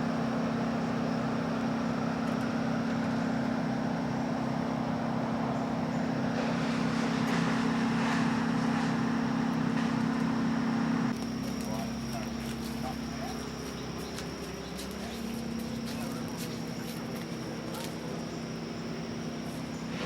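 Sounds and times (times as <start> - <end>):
engine humming: 0.0 - 20.0.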